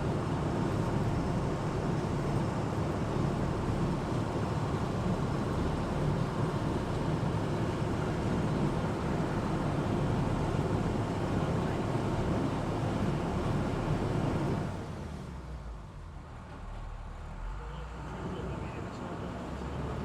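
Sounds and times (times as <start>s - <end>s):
boat engine running: 0.0s - 14.8s.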